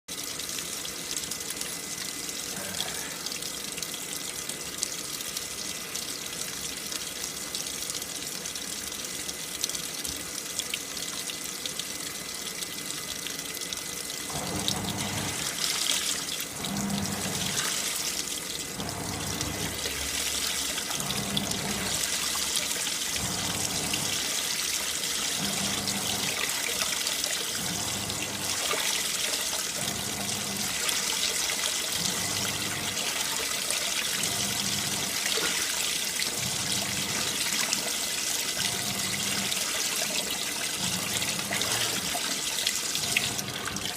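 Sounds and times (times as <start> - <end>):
water running into tub: 0.1 - 43.9
washing machine sloshing water: 14.2 - 43.9.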